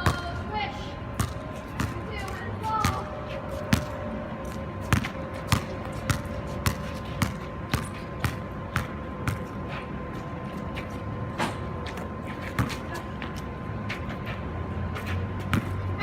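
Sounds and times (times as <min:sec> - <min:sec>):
basketball bouncing on court: 0:01.2 - 0:02.0, 0:02.8 - 0:03.0, 0:03.7 - 0:04.0, 0:04.8 - 0:09.5, 0:15.4 - 0:15.7.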